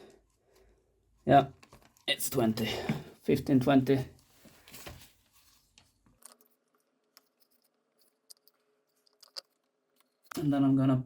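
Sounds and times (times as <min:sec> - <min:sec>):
small clicks and taps of tools: 0:05.8 - 0:10.5.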